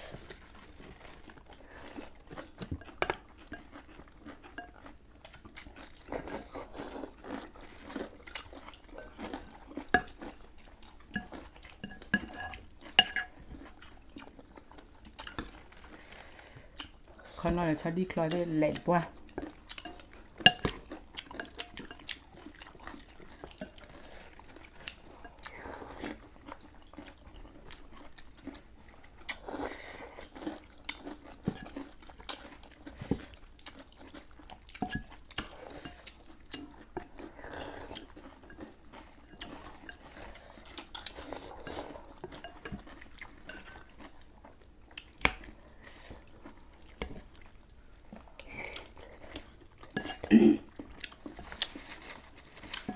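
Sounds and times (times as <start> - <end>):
people chewing crunchy food: 0.0 - 52.9
cutlery clicking on bowls: 11.2 - 13.3, 19.8 - 20.8.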